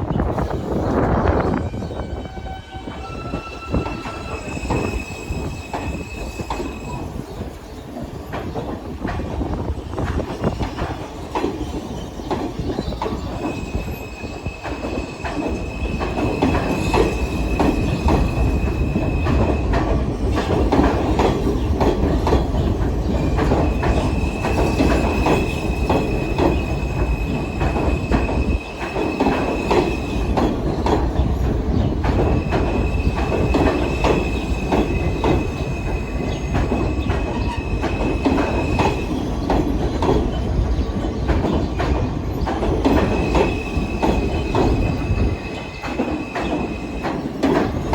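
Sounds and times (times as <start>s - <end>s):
train wheels clattering on rails: 0.0s - 47.9s
high wheel squeal: 0.4s - 7.5s.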